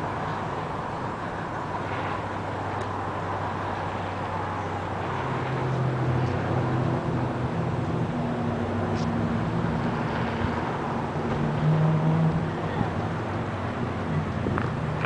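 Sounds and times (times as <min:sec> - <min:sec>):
urban traffic noise: 0:00.0 - 0:15.0
vehicle engine hum: 0:00.0 - 0:15.0.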